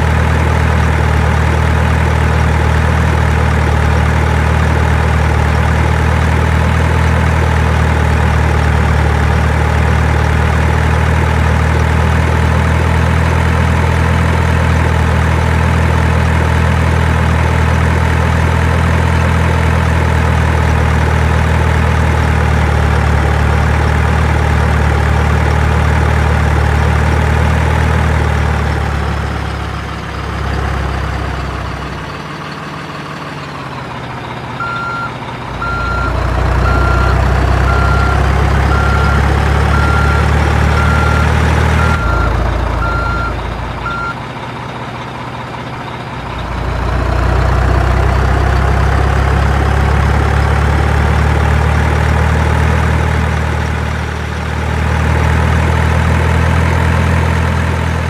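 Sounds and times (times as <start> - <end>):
heavy truck engine running: 0.0 - 58.0
reversing alarm beeping: 34.6 - 44.2.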